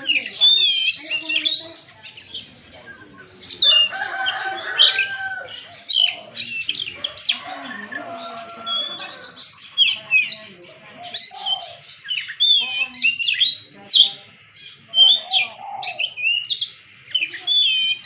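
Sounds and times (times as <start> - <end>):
bird singing varied whistles: 15.0 - 18.0.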